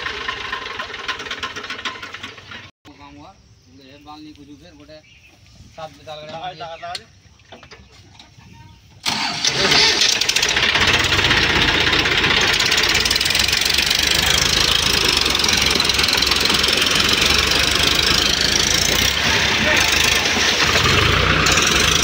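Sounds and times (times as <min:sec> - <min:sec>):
tractor diesel engine running: 0:00.0 - 0:02.7, 0:09.0 - 0:22.0.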